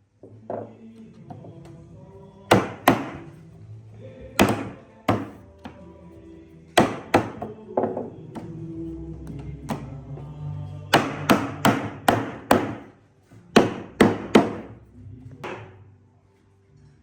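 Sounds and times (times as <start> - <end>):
hammer striking wood: 2.5 - 3.3, 4.4 - 5.8, 6.8 - 8.6, 10.9 - 12.9, 13.5 - 14.7, 15.4 - 15.8.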